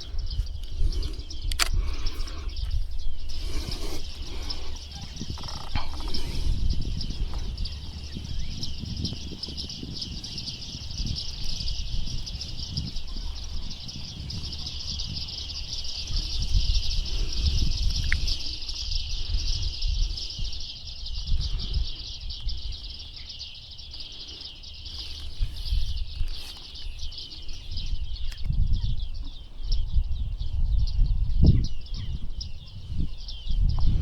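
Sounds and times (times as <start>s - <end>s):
wind rumbling on microphone: 0.0s - 34.0s
high-pitched bird chirps: 2.5s - 23.0s.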